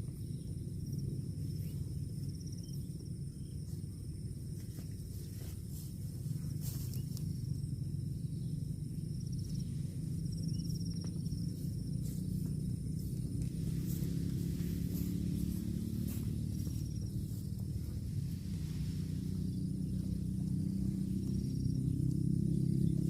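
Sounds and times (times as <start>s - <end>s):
insects trilling: 0.0s - 23.0s
low rumbling noise: 0.0s - 23.0s.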